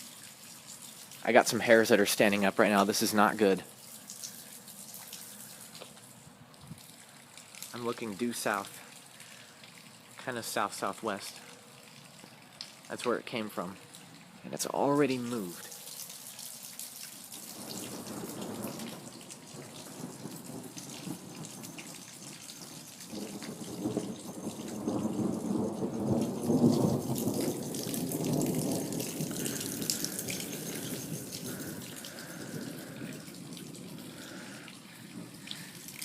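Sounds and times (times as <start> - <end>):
rain falling and dripping: 0.0 - 36.0
thunder rumbling: 17.5 - 36.0.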